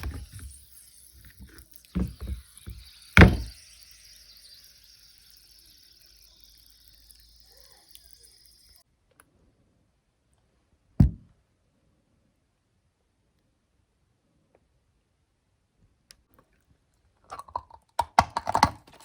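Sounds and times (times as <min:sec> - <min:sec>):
faint hiss: 0:00.0 - 0:08.8.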